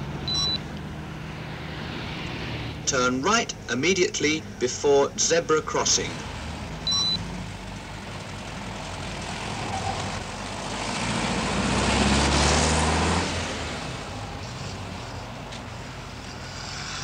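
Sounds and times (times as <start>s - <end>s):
car engine driving past: 1.1s - 2.9s, 8.9s - 15.2s.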